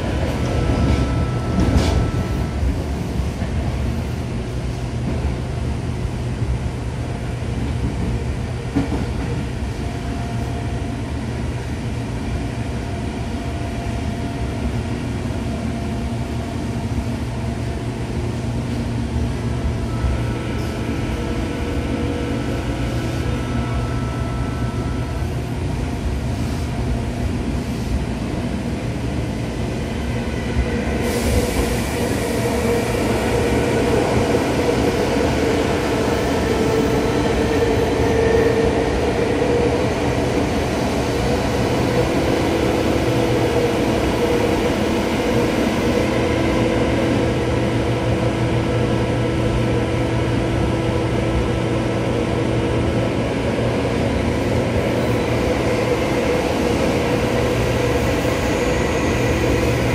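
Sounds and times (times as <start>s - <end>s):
faint train whine: 0.0s - 59.9s
wheels rumbling on rail: 0.0s - 59.9s.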